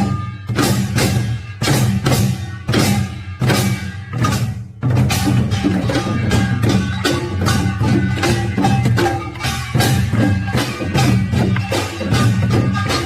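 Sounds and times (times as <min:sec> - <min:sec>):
fast folk percussion: 0:00.0 - 0:13.0.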